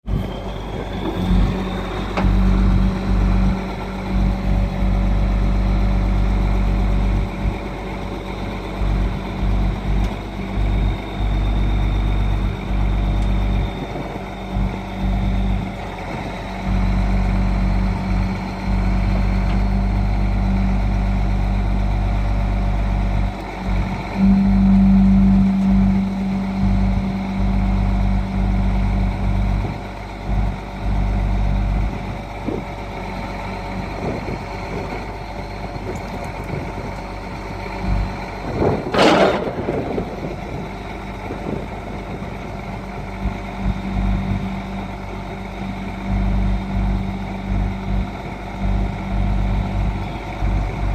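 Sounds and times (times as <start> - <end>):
diesel truck engine running: 0.0 - 50.9
loud burst of noise: 38.6 - 42.5.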